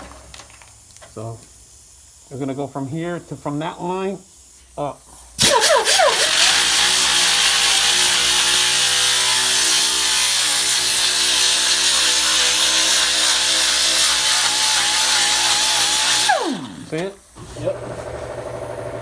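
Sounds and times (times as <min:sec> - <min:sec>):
power grinder grinding metal: 0:05.4 - 0:19.0.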